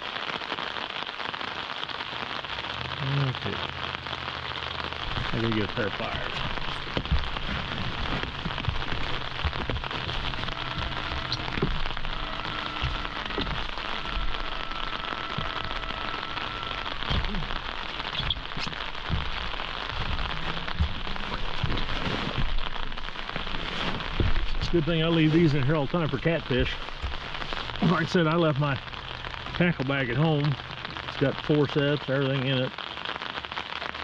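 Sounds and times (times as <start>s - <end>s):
rain pattering: 0.0s - 34.0s
dull knocks: 6.4s - 16.3s.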